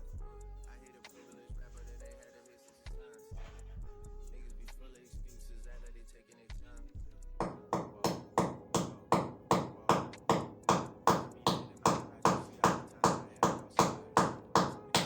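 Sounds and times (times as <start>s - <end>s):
sharp ringing taps: 7.4s - 15.0s.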